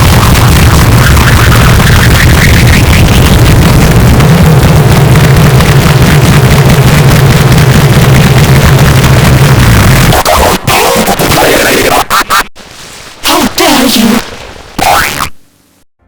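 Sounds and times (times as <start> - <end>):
distorted low drone: 0.0 - 11.4.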